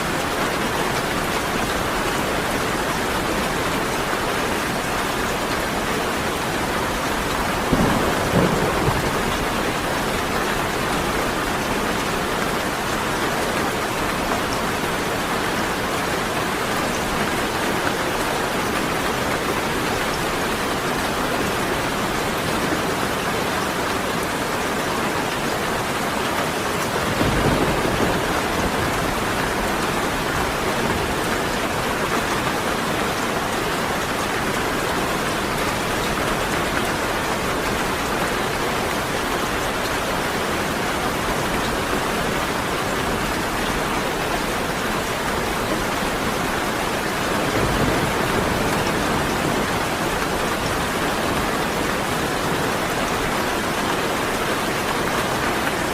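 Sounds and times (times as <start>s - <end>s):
heavy rain pouring: 0.0s - 55.9s
low rumble of thunder: 7.0s - 11.5s, 26.9s - 31.2s, 47.1s - 50.8s.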